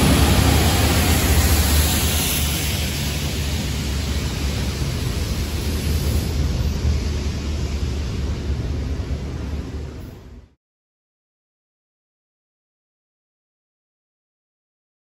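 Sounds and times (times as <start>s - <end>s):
water jets hissing: 0.0s - 6.6s
train wagons rumbling: 0.0s - 10.4s.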